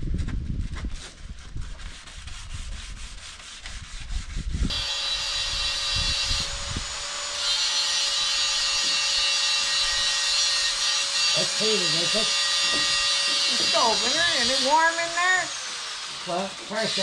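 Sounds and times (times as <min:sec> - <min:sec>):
power sander running: 0:04.7 - 0:17.0
knocking and handling noises: 0:12.6 - 0:13.8.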